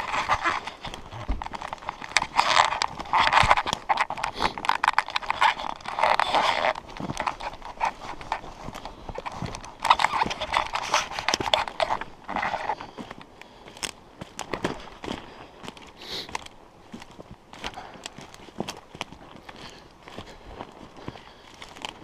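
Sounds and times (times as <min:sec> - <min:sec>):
footsteps through undergrowth: 0:00.0 - 0:22.0.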